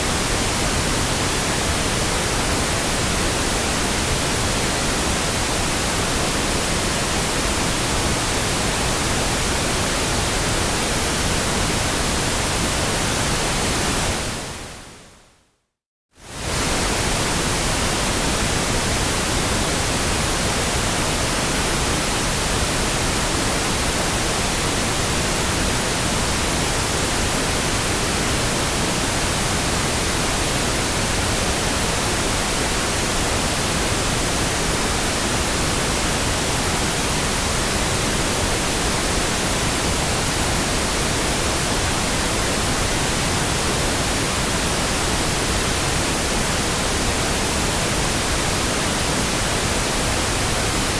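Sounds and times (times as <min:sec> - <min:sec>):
pink noise hiss: 0:16.2 - 0:50.9.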